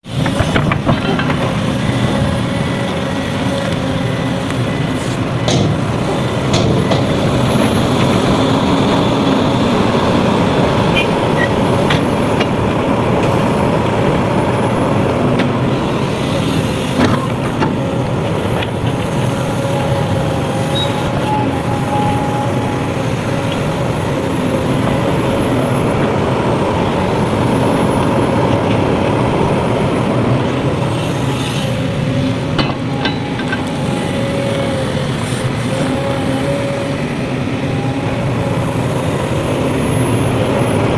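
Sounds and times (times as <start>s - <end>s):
heavy diesel machinery running: 0.0s - 40.9s
sharp knocks and clanks: 0.1s - 2.1s, 5.4s - 8.2s, 32.5s - 33.8s.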